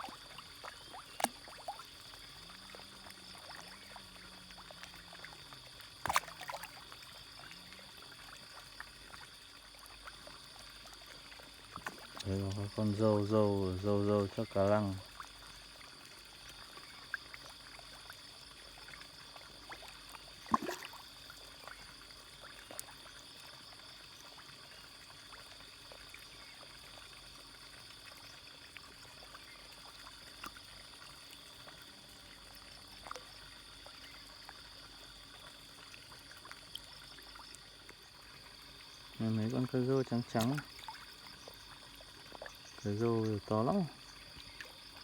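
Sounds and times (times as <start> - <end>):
fish feeding pops and clicks: 0.0 - 13.4, 18.8 - 21.8, 36.0 - 45.0
faint trickling water: 0.0 - 45.0
water splash: 6.0 - 6.8, 20.4 - 21.0, 39.6 - 41.0.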